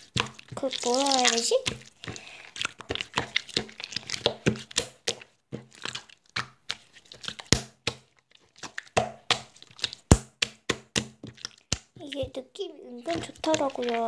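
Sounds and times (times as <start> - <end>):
slime sticky clicks and pops: 2.6 - 12.0.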